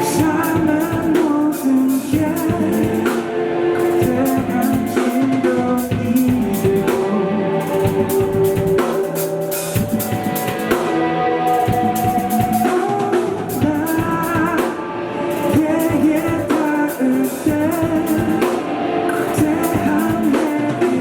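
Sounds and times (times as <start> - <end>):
drum kit beat: 0.0 - 21.0
electric guitar: 0.0 - 21.0
bass guitar: 3.8 - 14.7.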